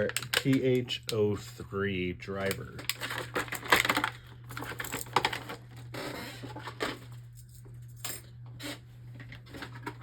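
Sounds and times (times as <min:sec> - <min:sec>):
plastic parts clicking and tapping: 0:00.0 - 0:01.2
packaging rustling: 0:02.7 - 0:07.0.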